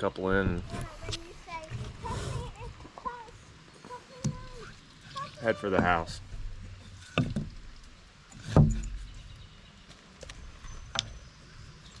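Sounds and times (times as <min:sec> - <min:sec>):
knocks on wooden lumber: 0:05.7 - 0:06.2, 0:07.1 - 0:07.6.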